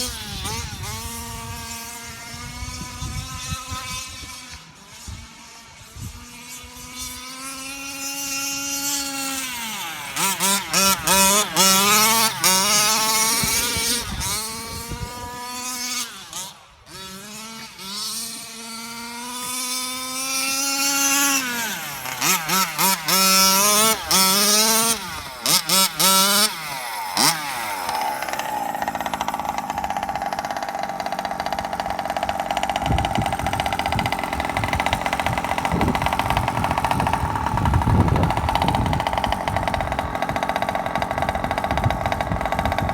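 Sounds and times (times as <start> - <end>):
rc truck engine revving: 0.0 - 42.9.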